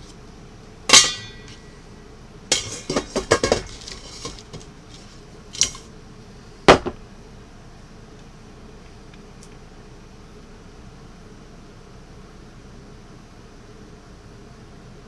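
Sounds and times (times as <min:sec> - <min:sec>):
metal utensils clattering on cookware: 0:00.9 - 0:01.7, 0:02.5 - 0:05.9.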